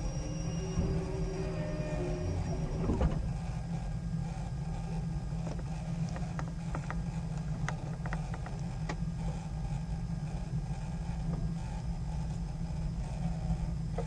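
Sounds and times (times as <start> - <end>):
train carriage low rumble: 0.0 - 14.0
light clicks and creaks: 5.3 - 9.0.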